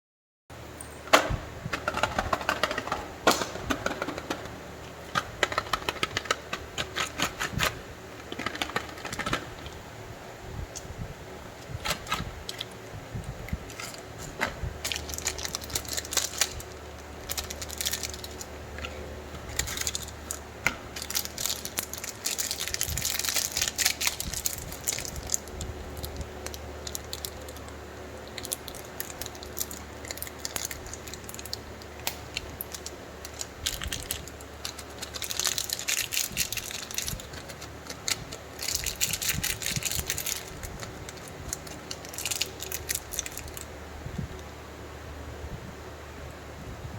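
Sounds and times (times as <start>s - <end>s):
clicks and small rattles: 1.7s - 9.8s
plastic packaging crinkling and tearing: 5.2s - 9.8s, 13.7s - 43.7s.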